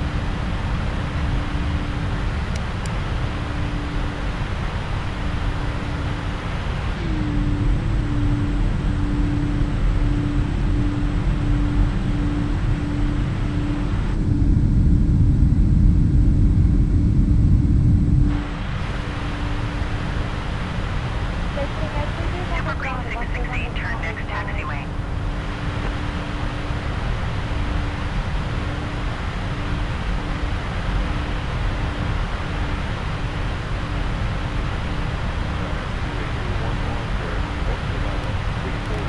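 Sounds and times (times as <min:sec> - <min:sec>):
jet engines rumbling: 0:00.0 - 0:07.3, 0:18.3 - 0:39.0
low hum: 0:00.0 - 0:39.0.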